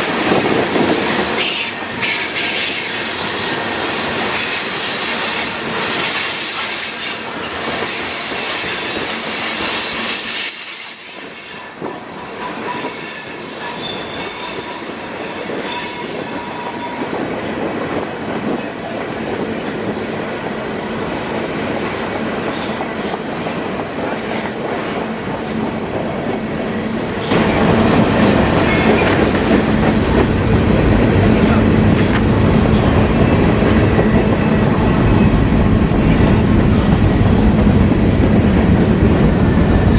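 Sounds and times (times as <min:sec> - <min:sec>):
wheels squealing on rails: 0:00.0 - 0:17.3, 0:18.5 - 0:19.5, 0:20.6 - 0:23.2, 0:28.4 - 0:29.4
freight train rolling past: 0:00.0 - 0:39.9.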